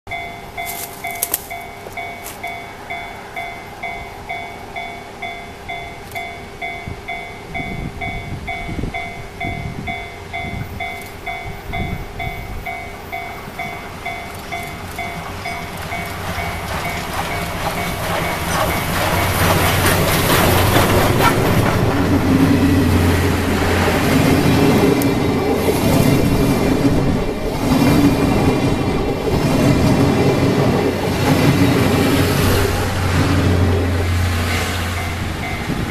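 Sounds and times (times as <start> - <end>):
level crossing bell ringing: 0.1 - 18.4
steam train rumble and clatter: 0.1 - 35.9.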